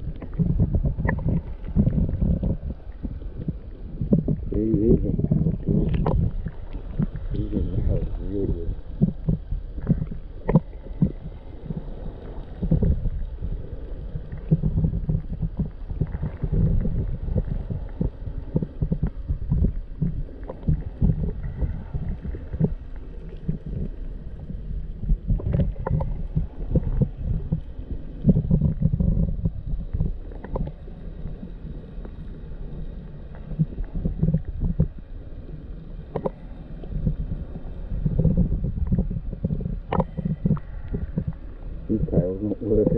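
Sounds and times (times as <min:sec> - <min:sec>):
underwater rumbling water: 0:00.0 - 0:42.9
small knocks and clicks: 0:36.1 - 0:36.4, 0:39.9 - 0:41.4.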